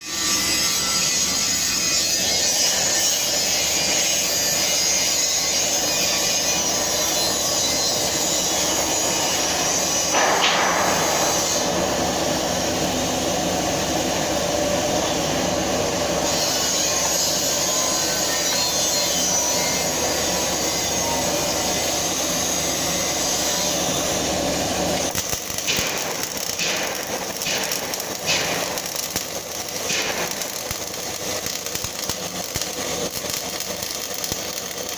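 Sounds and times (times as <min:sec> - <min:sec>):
welding arc crackling hiss: 0:00.0 - 0:34.9.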